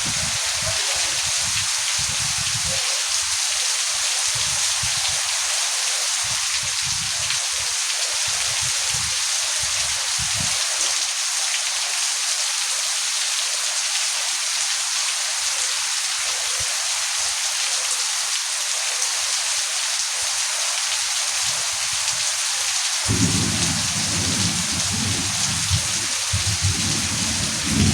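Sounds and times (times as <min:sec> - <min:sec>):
heavy rain falling: 0:00.0 - 0:27.9
low rumbling: 0:23.1 - 0:27.9.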